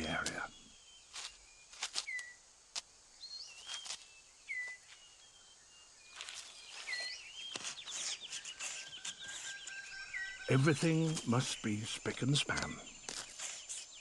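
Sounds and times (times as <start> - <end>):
birds whistling sliding notes: 0.0 - 2.4, 3.2 - 14.0
rustling of leaf litter: 1.0 - 2.9, 3.5 - 5.2, 6.1 - 9.9.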